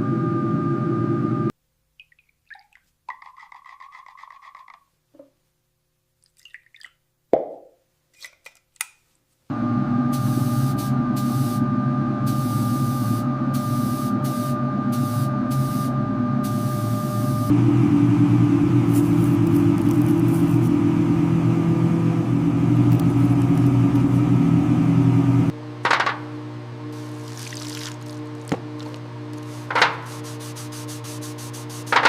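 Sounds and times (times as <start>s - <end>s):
machine humming: 9.5s - 32.0s.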